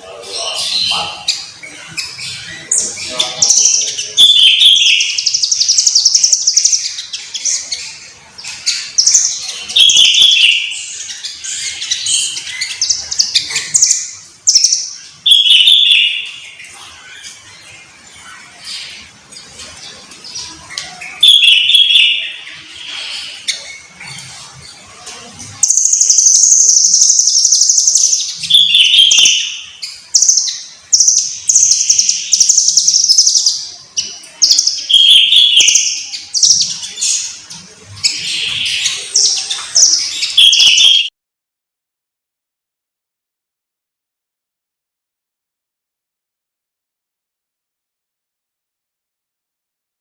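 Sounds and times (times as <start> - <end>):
bird singing rapid trills: 0.2 - 8.0, 25.6 - 37.4.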